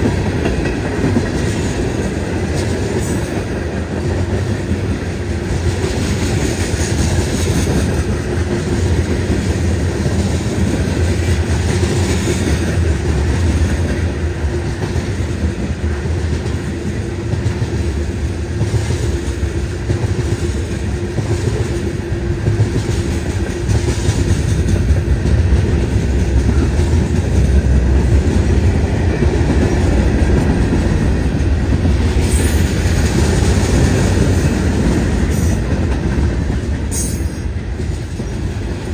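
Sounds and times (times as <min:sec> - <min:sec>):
freight train wheels rumbling: 0:00.0 - 0:38.9
rail joints clickety-clack: 0:00.0 - 0:38.9.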